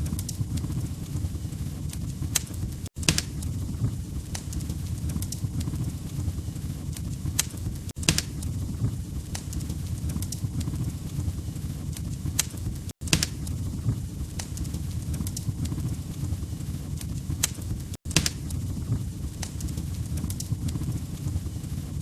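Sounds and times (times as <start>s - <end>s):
log fire crackling: 0.0s - 22.0s.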